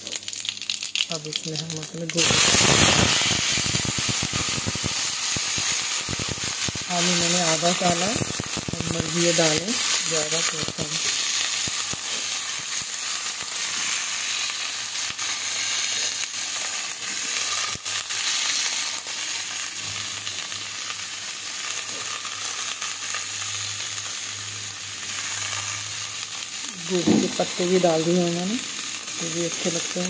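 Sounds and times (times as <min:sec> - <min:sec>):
vegetables frying in hot oil: 0:00.0 - 0:30.0.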